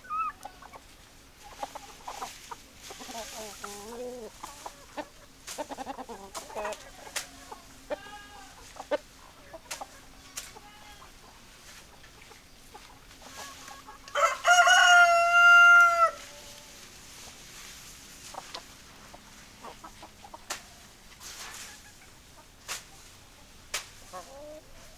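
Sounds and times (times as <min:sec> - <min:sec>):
chickens clucking: 0:00.0 - 0:24.9
rooster crowing: 0:14.1 - 0:16.6.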